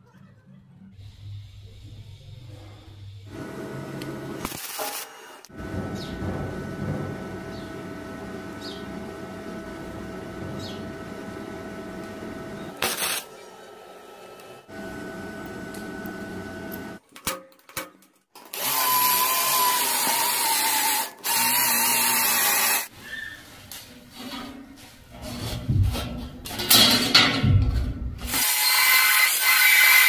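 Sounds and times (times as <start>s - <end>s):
quiet working noise: 0.4s - 17.0s
high-pitched power tool running: 18.6s - 22.9s.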